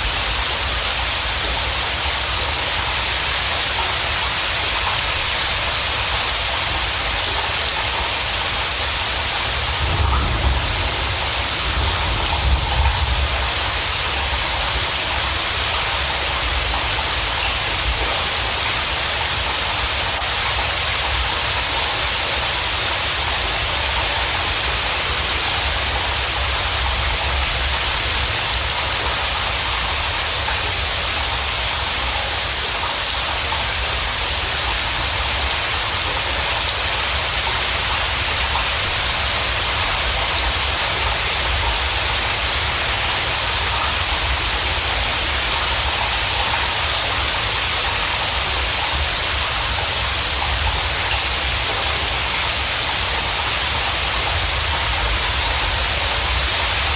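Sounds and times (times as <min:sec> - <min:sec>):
heavy rain hissing: 0:00.0 - 0:56.9
low rumble: 0:09.5 - 0:14.6.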